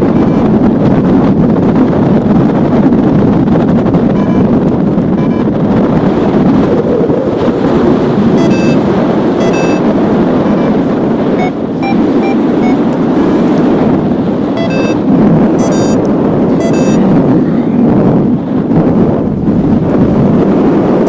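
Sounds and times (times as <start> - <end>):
variometer beeping: 0.0 - 1.0, 4.1 - 5.7, 8.2 - 13.0, 14.5 - 17.2
wind buffeting microphone: 0.0 - 21.0.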